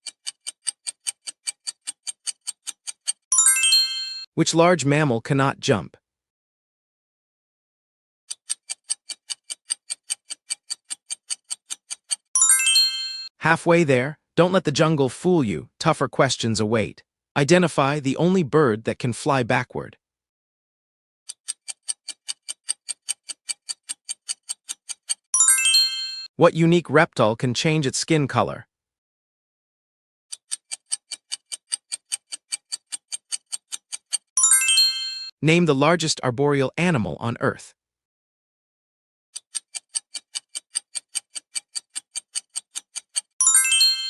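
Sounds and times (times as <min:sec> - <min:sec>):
quick clock ticking: 0:00.0 - 0:03.3, 0:08.3 - 0:12.3, 0:21.3 - 0:25.3, 0:30.3 - 0:34.4, 0:39.4 - 0:43.4
bright ringing chime: 0:03.3 - 0:04.3, 0:12.4 - 0:13.3, 0:25.4 - 0:26.3, 0:34.4 - 0:35.3, 0:43.4 - 0:44.0
countdown timer ticking: 0:39.4 - 0:44.0.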